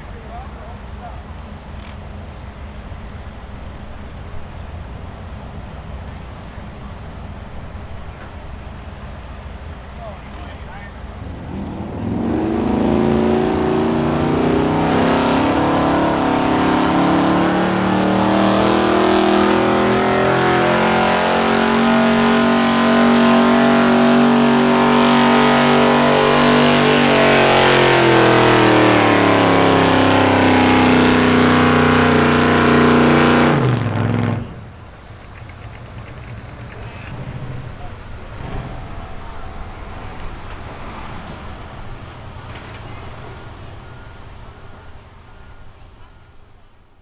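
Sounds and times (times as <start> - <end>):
truck engine at high revs: 0.0 - 45.7.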